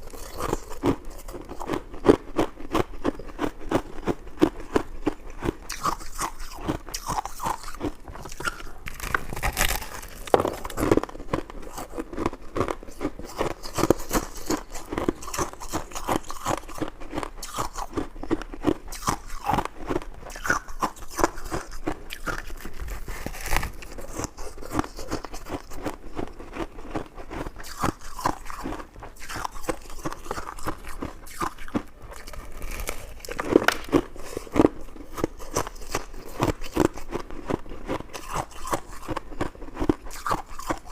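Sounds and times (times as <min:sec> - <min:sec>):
chewing and biting: 0:00.0 - 0:40.9
wet clicks and crunches: 0:07.0 - 0:11.9, 0:32.1 - 0:37.1.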